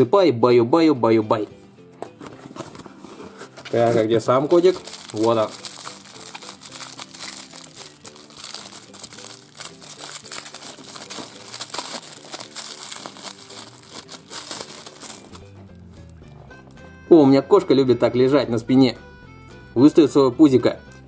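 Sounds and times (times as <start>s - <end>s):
plastic bag crinkling: 3.5s - 15.4s.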